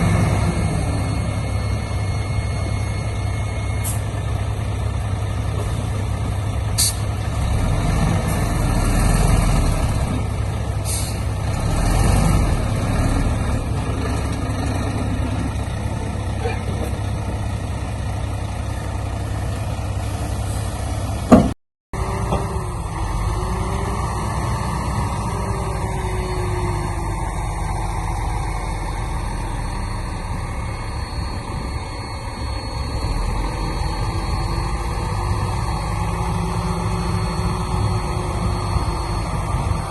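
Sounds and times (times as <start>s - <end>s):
diesel machinery running: 0.0s - 39.9s.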